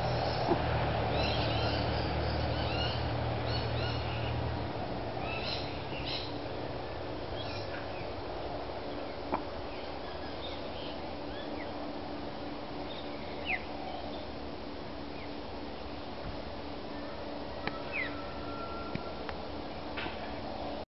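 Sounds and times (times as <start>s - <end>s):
small birds chirping: 0.0s - 4.4s, 5.2s - 6.4s, 7.3s - 11.9s, 12.8s - 14.4s
low steady hum: 0.0s - 20.8s.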